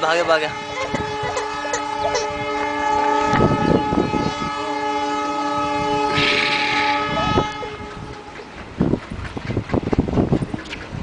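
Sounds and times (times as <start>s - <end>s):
train rumble: 0.0s - 11.0s
train horn blast: 0.1s - 8.6s
hissing burst: 6.1s - 7.2s.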